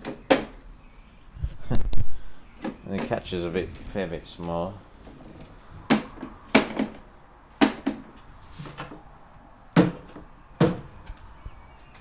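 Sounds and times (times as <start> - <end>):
sharp knocks and clunks: 0.0 - 0.6, 5.8 - 9.0, 9.8 - 11.2.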